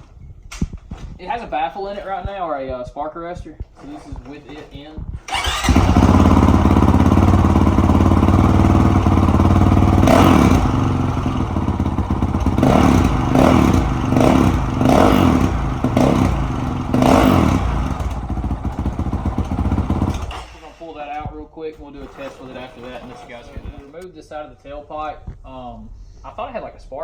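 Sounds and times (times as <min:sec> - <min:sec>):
motorcycle engine revving: 0:03.6 - 0:20.8, 0:21.7 - 0:24.0.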